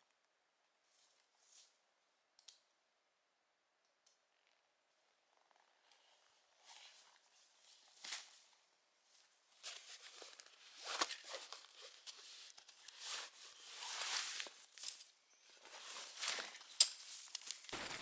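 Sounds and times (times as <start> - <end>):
footsteps through undergrowth: 17.4 - 18.0.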